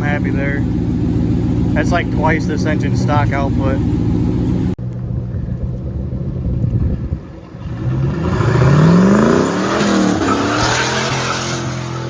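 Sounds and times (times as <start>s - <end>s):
high turbo whine: 0.0s - 12.0s
car engine revving on dyno: 7.6s - 12.0s.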